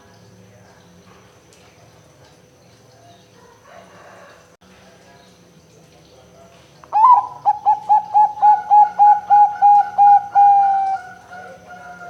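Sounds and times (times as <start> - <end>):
dove cooing: 6.9 - 12.0.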